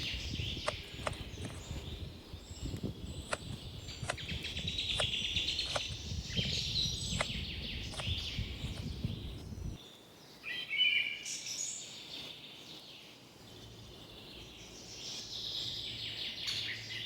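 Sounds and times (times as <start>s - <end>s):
small birds chirping: 0.0s - 17.0s
sharp click: 0.6s - 1.6s, 3.3s - 4.3s, 4.9s - 6.0s, 7.1s - 8.9s.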